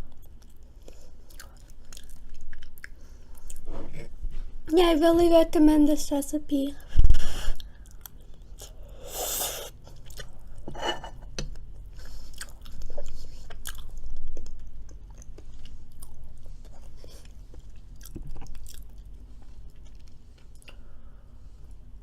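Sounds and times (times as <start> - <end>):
person chewing crunchy food: 0.0 - 4.1, 7.5 - 20.9.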